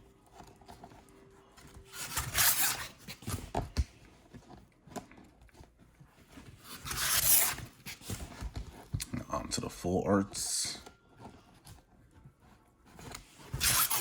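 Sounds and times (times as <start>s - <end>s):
plastic sleeve pages swishing: 1.8s - 3.5s, 6.4s - 8.9s, 13.0s - 14.0s.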